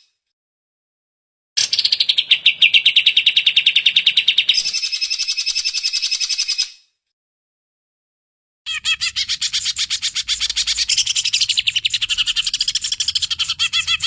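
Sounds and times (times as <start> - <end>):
bird singing fast trill: 8.7 - 14.0.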